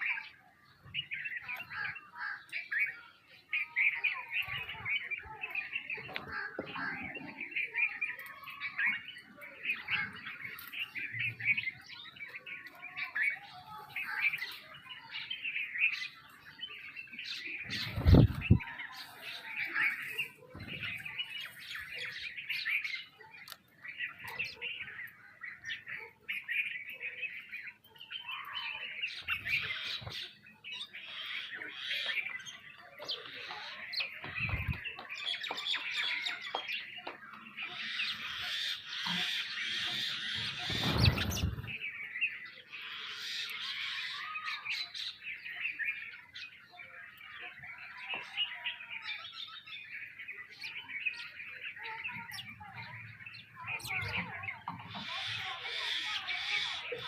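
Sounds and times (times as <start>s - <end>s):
sparrows chirping: 0.0s - 57.0s.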